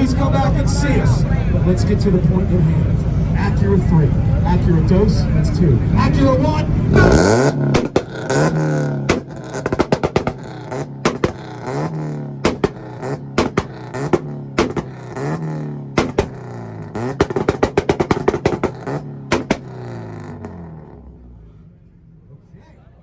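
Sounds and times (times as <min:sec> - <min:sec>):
car engine revving to limiter: 0:02.2 - 0:22.2
exhaust pops and cracks: 0:07.0 - 0:20.6.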